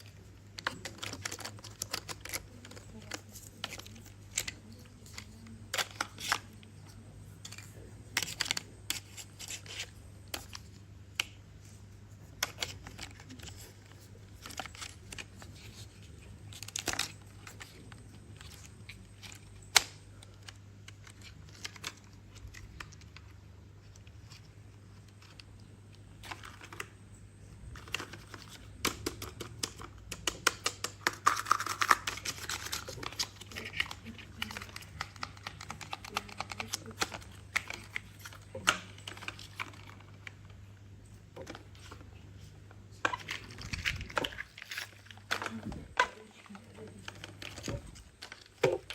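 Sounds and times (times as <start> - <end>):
faint low hum: 0.0 - 48.9
plastic toy clicks and taps: 28.9 - 32.1.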